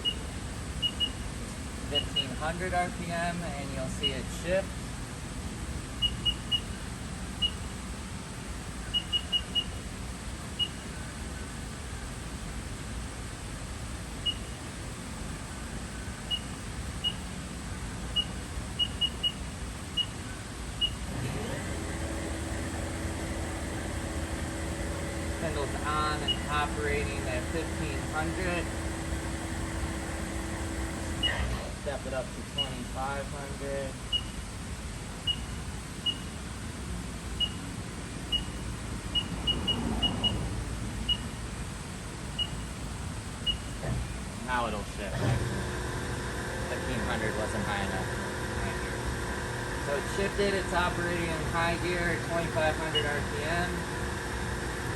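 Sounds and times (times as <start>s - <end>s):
control panel beeps: 0.0s - 0.2s, 0.8s - 1.2s, 1.9s - 2.4s, 8.9s - 9.8s, 14.2s - 14.5s, 16.3s - 17.3s, 25.2s - 28.8s, 31.2s - 31.5s, 32.6s - 32.8s, 34.1s - 34.4s, 35.2s - 36.4s, 37.4s - 37.6s, 38.3s - 38.6s, 39.2s - 40.4s, 41.1s - 41.4s, 42.4s - 42.7s, 43.4s - 43.8s, 51.8s - 53.8s
low machine hum: 0.0s - 54.9s.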